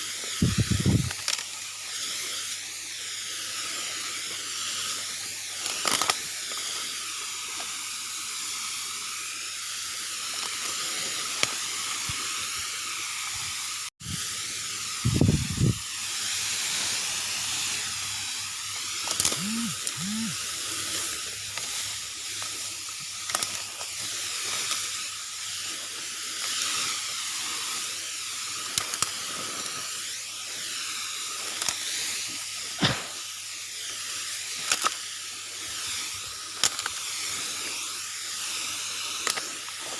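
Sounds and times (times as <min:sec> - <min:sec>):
power sprayer hissing: 0:00.0 - 0:39.9.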